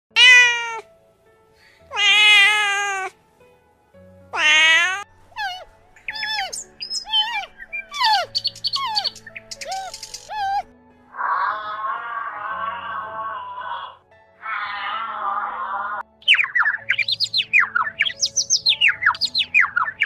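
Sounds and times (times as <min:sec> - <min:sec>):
cat meowing: 0:00.1 - 0:00.8, 0:01.9 - 0:03.1, 0:04.3 - 0:10.6, 0:14.4 - 0:15.8
cat squeaky calls: 0:00.1 - 0:00.8, 0:01.9 - 0:03.1, 0:04.3 - 0:10.7, 0:16.3 - 0:20.0.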